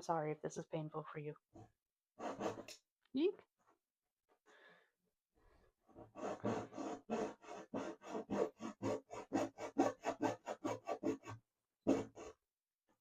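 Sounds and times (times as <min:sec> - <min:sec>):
hacksaw cutting board: 0:02.2 - 0:02.8, 0:06.0 - 0:12.4.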